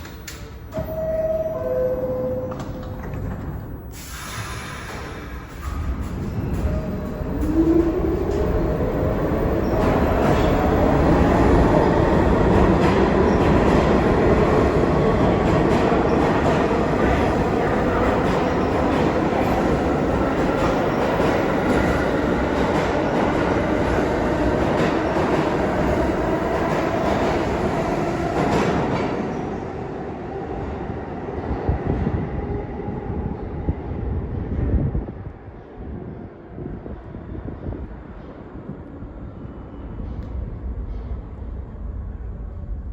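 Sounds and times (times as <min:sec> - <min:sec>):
subway traction motors whining: 0:00.0 - 0:33.3.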